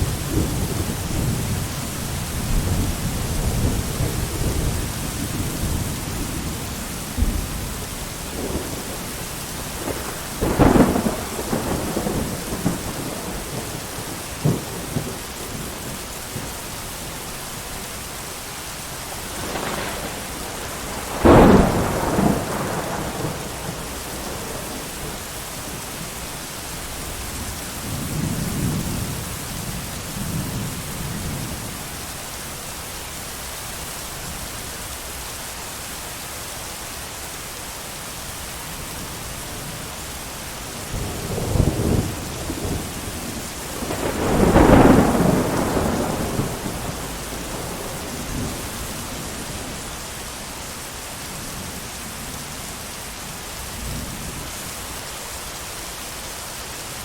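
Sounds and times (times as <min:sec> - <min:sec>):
low thunder rumbles: 0:00.0 - 0:17.7, 0:18.9 - 0:31.9, 0:38.9 - 0:54.6
heavy rain: 0:00.0 - 0:57.0
thunder cracks: 0:07.2 - 0:16.5, 0:19.2 - 0:25.3, 0:40.8 - 0:49.8.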